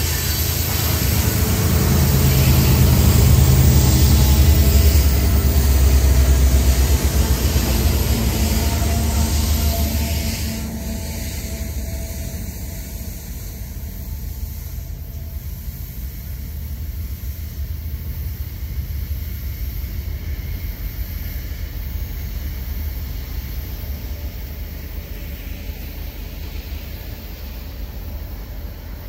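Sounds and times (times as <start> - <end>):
freight train rumbling past: 0.0 - 29.0.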